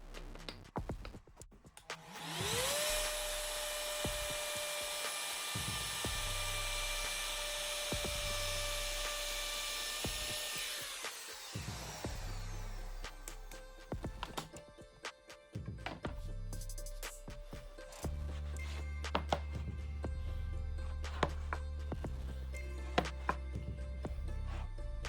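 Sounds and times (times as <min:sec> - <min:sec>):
electric wood router whining: 0:02.0 - 0:13.0.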